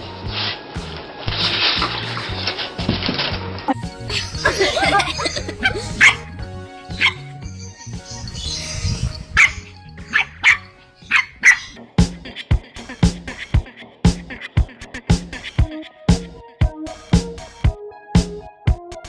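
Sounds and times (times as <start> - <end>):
background music: 0.0 - 19.0
dog barking: 4.7 - 6.3, 7.0 - 7.3, 9.2 - 11.8.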